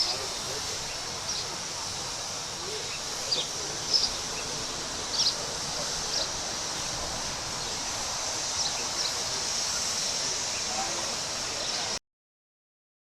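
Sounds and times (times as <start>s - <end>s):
steady high hiss: 0.0s - 12.0s
small birds chirping: 0.8s - 1.5s, 2.8s - 5.4s.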